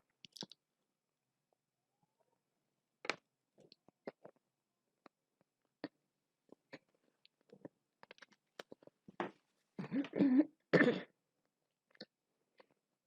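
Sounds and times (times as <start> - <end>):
person chewing and lip smacking: 0.2 - 0.6, 5.8 - 8.9.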